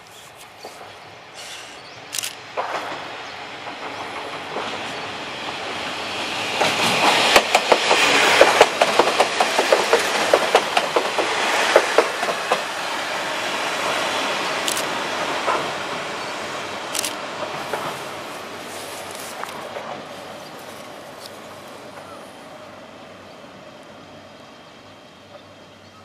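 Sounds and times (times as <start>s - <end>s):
diesel railcar passing: 0.0s - 26.0s
wheel clacks over rail joints: 5.5s - 12.7s.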